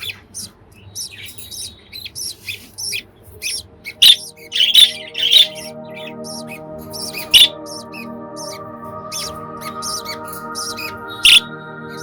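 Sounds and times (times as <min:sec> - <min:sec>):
budgies chirping: 0:00.0 - 0:12.0
background music: 0:02.8 - 0:12.0.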